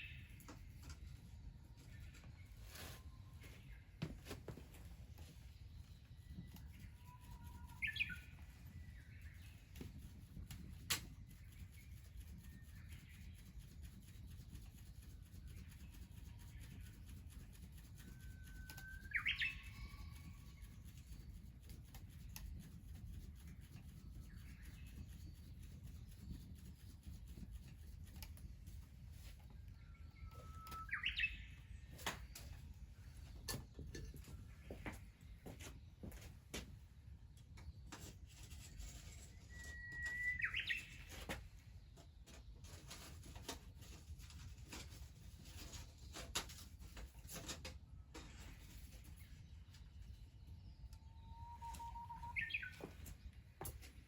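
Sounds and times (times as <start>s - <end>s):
bird calling: 30.2s - 31.6s, 39.5s - 41.2s, 51.1s - 53.1s.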